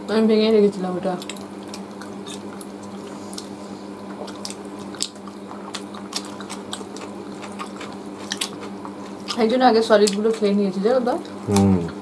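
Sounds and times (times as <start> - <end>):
steady low hum: 0.0 - 12.0
wet mouth smacks while chewing: 1.2 - 9.4.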